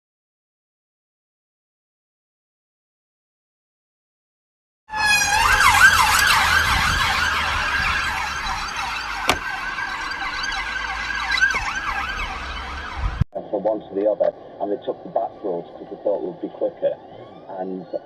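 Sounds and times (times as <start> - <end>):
emergency siren wailing: 4.9 - 13.7, 14.6 - 18.0.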